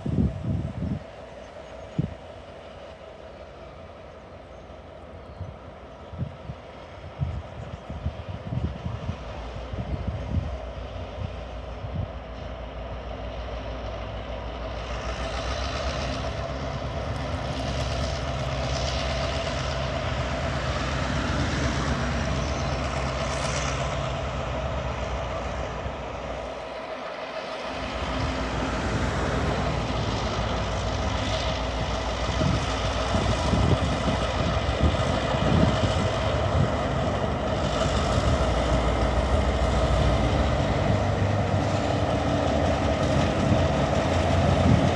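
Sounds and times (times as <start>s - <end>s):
diesel locomotive engine drone: 0.0s - 44.9s.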